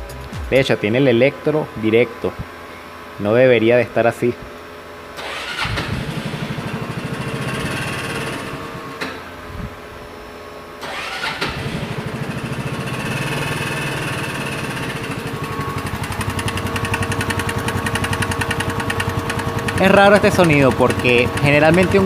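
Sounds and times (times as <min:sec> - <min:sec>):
electric starter cranking: 0:05.2 - 0:09.4, 0:10.8 - 0:22.0
scooter engine idling with knock: 0:11.6 - 0:22.0.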